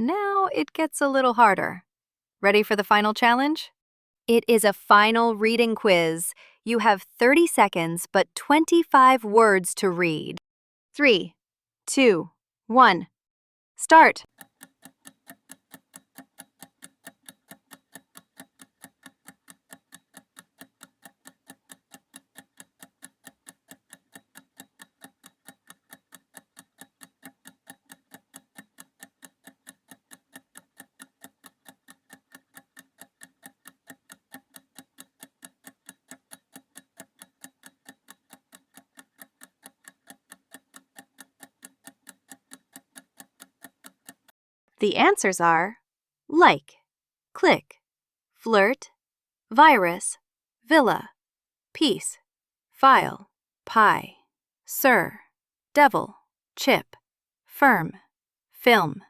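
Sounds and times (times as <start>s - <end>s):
clock ticking: 4.4s - 10.3s, 13.9s - 44.3s.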